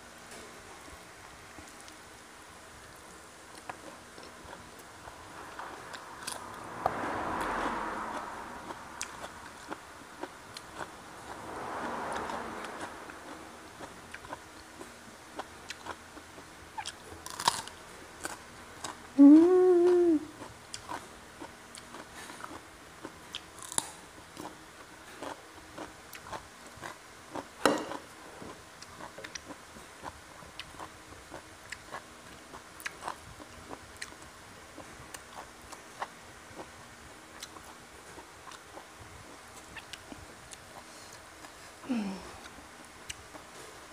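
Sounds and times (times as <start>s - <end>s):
chewing crunches: 12.1s - 19.0s, 20.4s - 36.8s
person humming: 19.2s - 20.4s, 41.8s - 42.5s.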